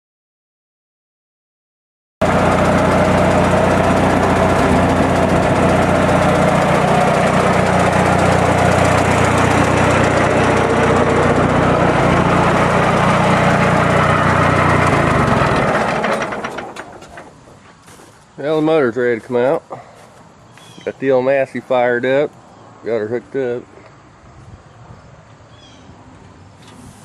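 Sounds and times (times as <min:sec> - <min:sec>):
tractor engine idling: 0:02.2 - 0:20.1.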